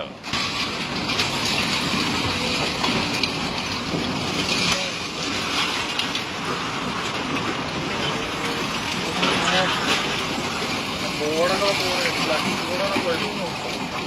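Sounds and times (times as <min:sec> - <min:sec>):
heavy rain hissing: 0:00.2 - 0:14.0
faint voices: 0:07.7 - 0:14.0.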